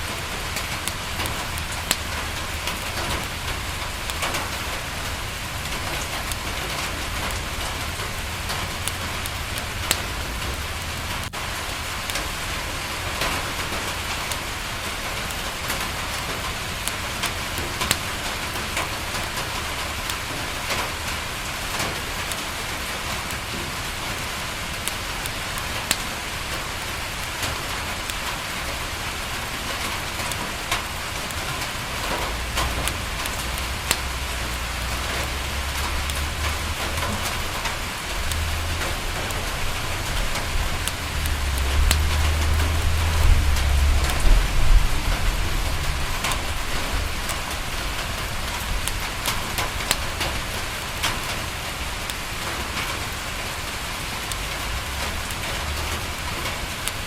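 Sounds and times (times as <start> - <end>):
sharp ticks and pops: 0.0 - 12.4, 13.1 - 21.2, 21.8 - 57.0
rain against a window: 0.0 - 57.0
low rumble: 32.5 - 48.8.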